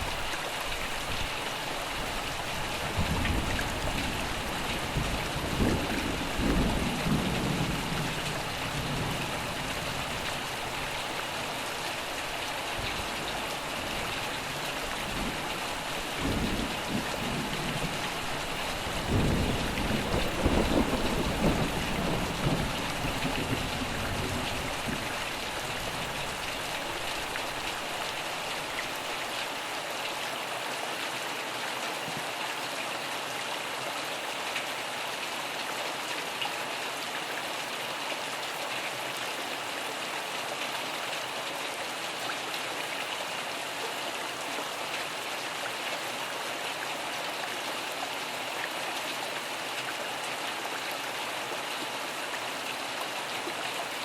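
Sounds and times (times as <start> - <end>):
rain pattering: 0.0 - 30.4, 31.0 - 54.0
low thunder rumble: 18.9 - 25.2.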